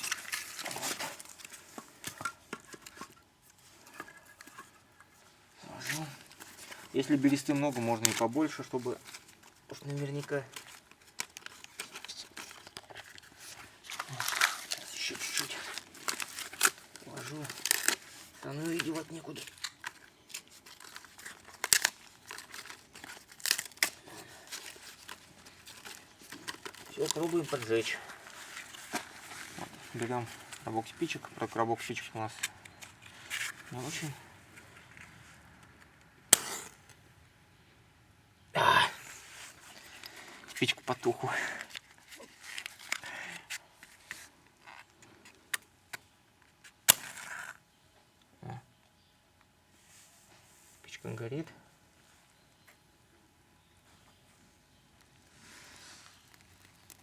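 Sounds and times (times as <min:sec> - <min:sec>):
dry bark crinkling and crackling: 0:00.0 - 0:37.2, 0:39.0 - 0:48.9, 0:50.8 - 0:57.0
match striking and flaring: 0:36.3 - 0:37.0, 0:46.8 - 0:47.6.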